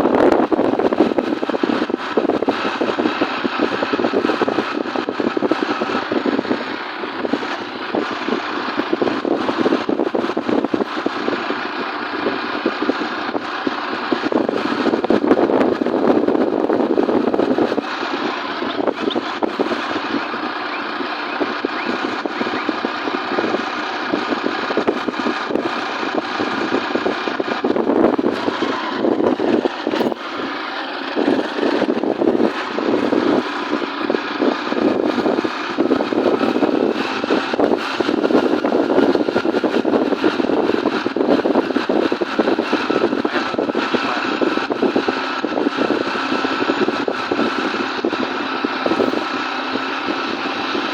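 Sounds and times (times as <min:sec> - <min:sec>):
motorcycle engine running: 0:00.0 - 0:50.9
road noise rushing: 0:00.0 - 0:50.9.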